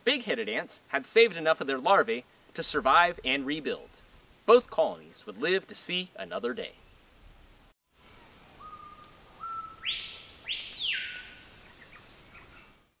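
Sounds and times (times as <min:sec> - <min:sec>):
high insect drone: 0:06.0 - 0:13.0
bird whistled call: 0:08.6 - 0:12.8.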